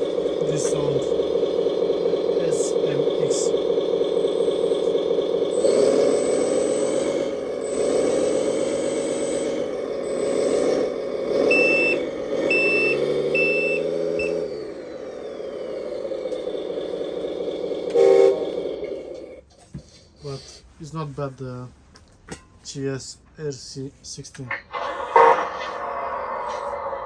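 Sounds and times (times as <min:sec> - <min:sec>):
thin whine gliding down: 0:00.0 - 0:18.3, 0:24.5 - 0:27.0
simulated diesel engine from speaker: 0:00.0 - 0:21.8, 0:22.6 - 0:27.0
reversing beeps: 0:11.5 - 0:14.4.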